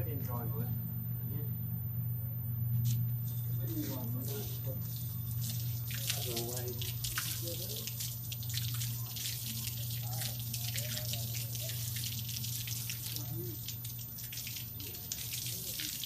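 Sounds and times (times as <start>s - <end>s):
steady low hum: 0.0s - 16.0s
water spraying and splashing: 3.7s - 16.0s.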